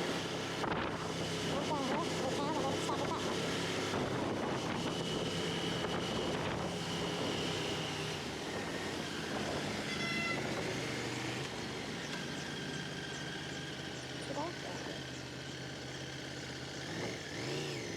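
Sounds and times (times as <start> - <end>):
vehicle engine running: 0.0 - 17.9.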